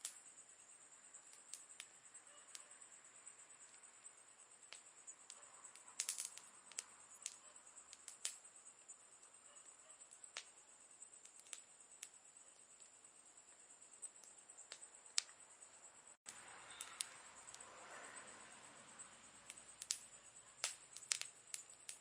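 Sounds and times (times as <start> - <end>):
campfire crackling and popping: 0.0 - 0.4, 1.2 - 2.6, 3.6 - 15.4, 16.2 - 17.6, 19.4 - 22.0.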